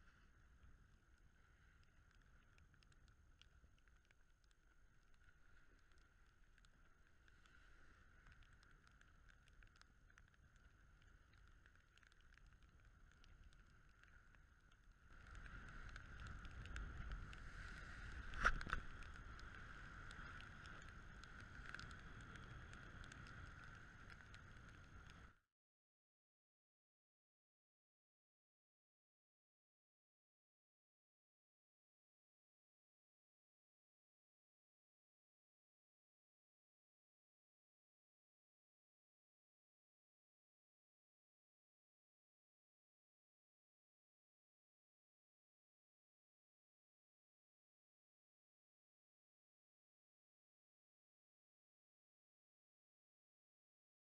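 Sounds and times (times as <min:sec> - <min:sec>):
faint wind: 0:00.0 - 0:25.4
light ticks: 0:00.0 - 0:25.4
water noise: 0:00.0 - 0:25.4.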